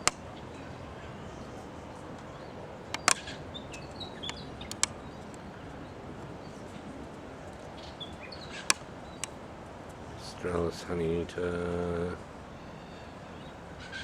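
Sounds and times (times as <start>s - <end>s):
sharp clicks: 0.0s - 0.2s, 2.9s - 3.3s, 4.2s - 5.3s
small birds chirping: 0.0s - 9.4s
outdoor background hiss: 0.0s - 14.0s.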